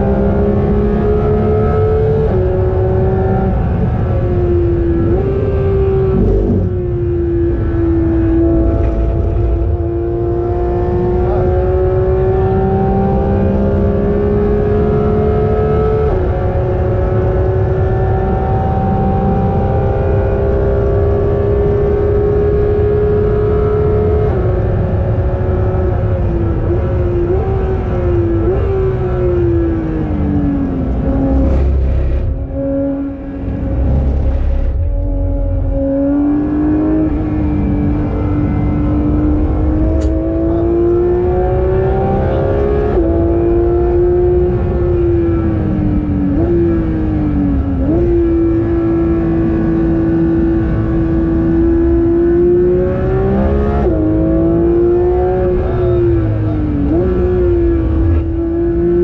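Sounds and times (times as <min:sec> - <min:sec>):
car engine under load: 0:00.0 - 0:59.0
tyre and road rumble: 0:26.5 - 0:43.4.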